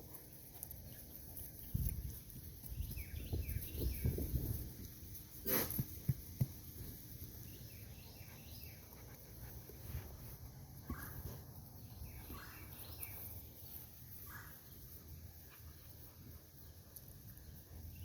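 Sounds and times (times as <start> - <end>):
faint short chirping calls: 10.8 - 16.0.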